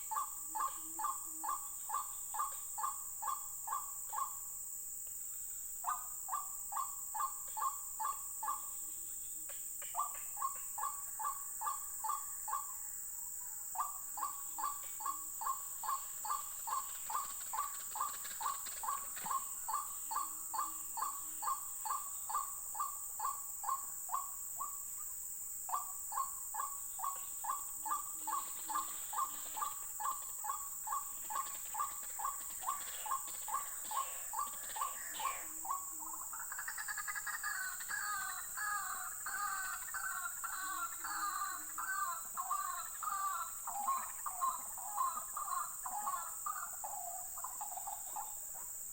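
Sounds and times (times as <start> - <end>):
waterhens calling harshly: 36.8 - 46.4.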